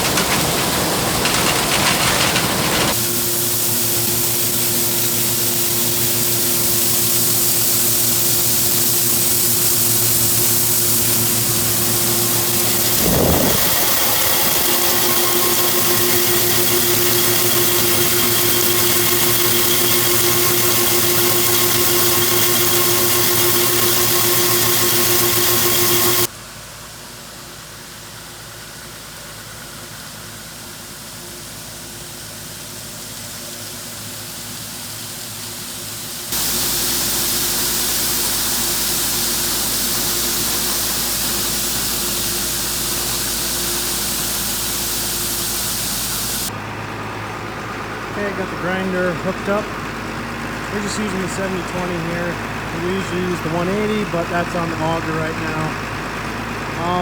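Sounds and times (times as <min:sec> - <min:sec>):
farm machine engine running: 0:00.0 - 0:26.3, 0:36.3 - 0:57.0
broad hiss: 0:02.3 - 0:26.3, 0:30.8 - 0:46.5.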